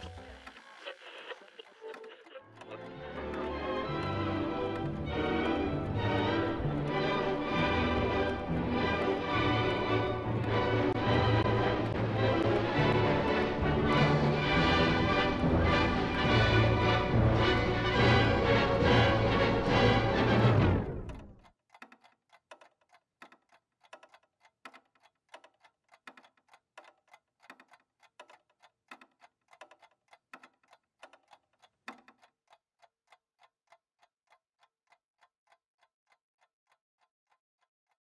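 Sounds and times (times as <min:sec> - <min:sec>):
music: 0:00.0 - 0:21.4.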